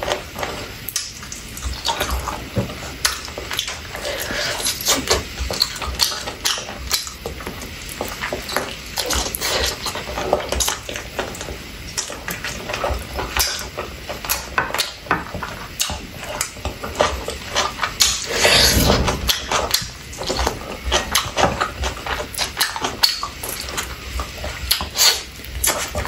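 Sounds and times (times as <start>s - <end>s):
person chewing with lip smacks: 15.7s - 26.0s.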